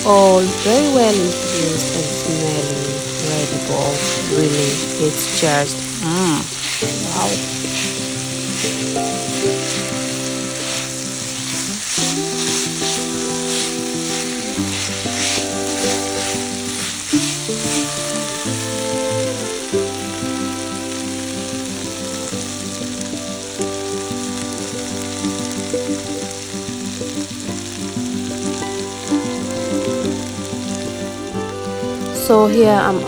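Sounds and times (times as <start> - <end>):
background music: 0.0 - 33.0
meat sizzling in a pot: 0.0 - 33.0.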